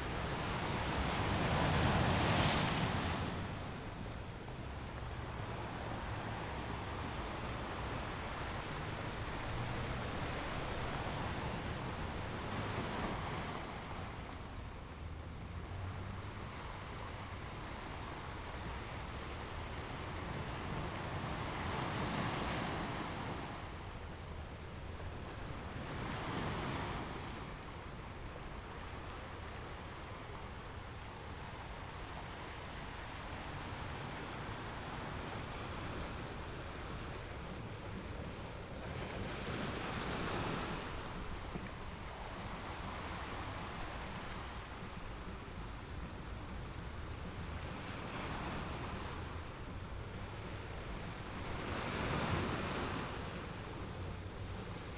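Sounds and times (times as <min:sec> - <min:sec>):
sea waves washing in: 0:28.8 - 0:53.4.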